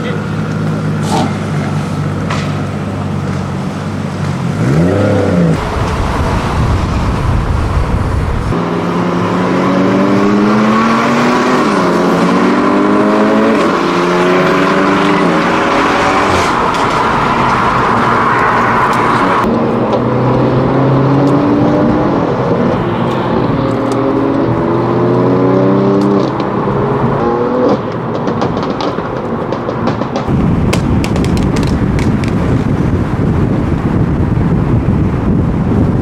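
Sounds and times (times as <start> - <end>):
car engine idling and revving: 0.0 - 35.9
car accelerating hard: 3.9 - 30.6.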